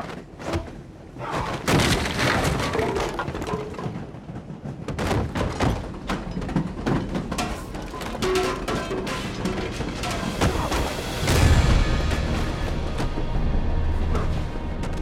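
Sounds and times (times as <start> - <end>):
fight thuds and knocks: 0.0 - 3.5, 4.8 - 13.2.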